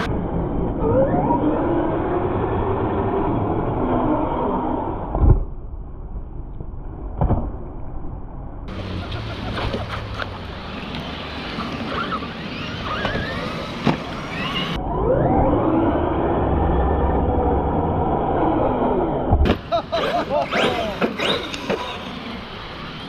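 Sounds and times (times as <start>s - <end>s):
electric motor whine: 10.4s - 19.1s.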